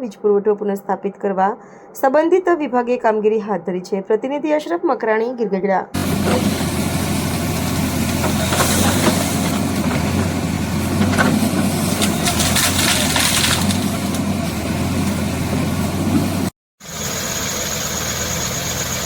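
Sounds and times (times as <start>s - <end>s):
vehicle engine running: 6.0s - 19.0s.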